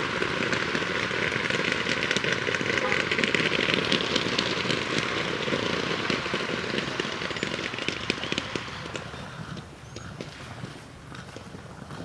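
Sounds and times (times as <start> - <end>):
distant paintball markers firing: 5.0 - 10.4.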